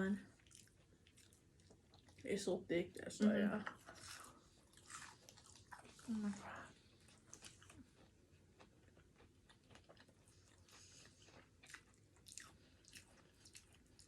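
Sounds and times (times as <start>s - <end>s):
faint chewing: 0.2s - 14.0s.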